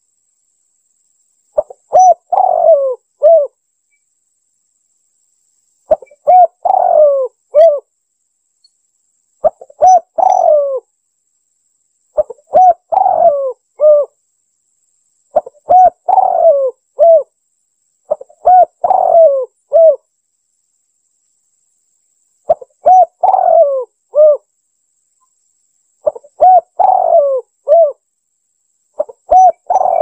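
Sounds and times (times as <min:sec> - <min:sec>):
dove cooing: 0:01.6 - 0:03.6, 0:05.9 - 0:07.9, 0:09.4 - 0:10.9, 0:12.2 - 0:14.2, 0:15.4 - 0:17.3, 0:18.1 - 0:20.0, 0:22.5 - 0:24.5, 0:26.0 - 0:28.0, 0:29.0 - 0:30.0.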